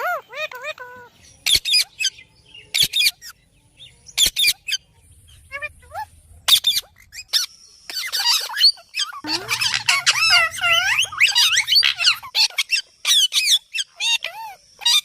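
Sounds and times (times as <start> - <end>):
parrot warbling chatter: 0.0 - 2.1, 5.4 - 15.0
parrot squawking: 5.5 - 15.0.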